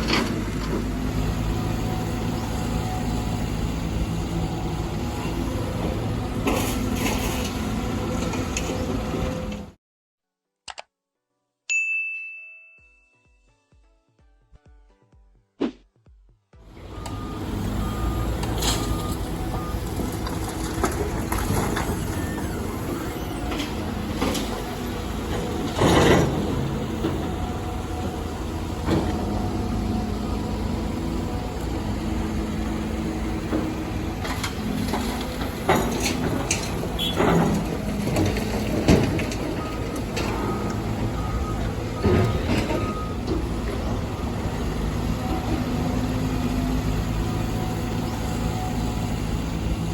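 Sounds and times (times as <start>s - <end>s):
diesel engine drone: 0.0s - 9.8s, 16.6s - 49.9s
machinery knocks and clanks: 23.4s - 29.9s, 33.2s - 46.0s.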